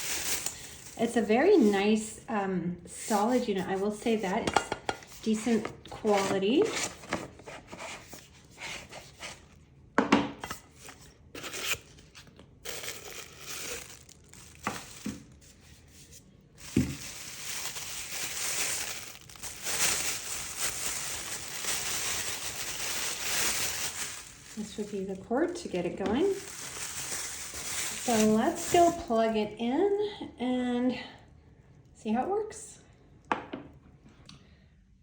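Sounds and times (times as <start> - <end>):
wrapping crinkling and tearing: 0.0 - 1.9, 5.1 - 9.6, 10.5 - 29.3
packaging knocks and clicks: 16.6 - 24.6.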